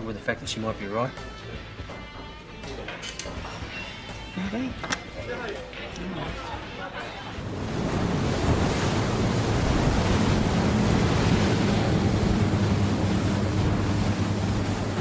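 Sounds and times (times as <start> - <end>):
rushing water: 7.3 - 15.0
motorboat engine drone: 7.4 - 15.0
wind: 7.4 - 15.0.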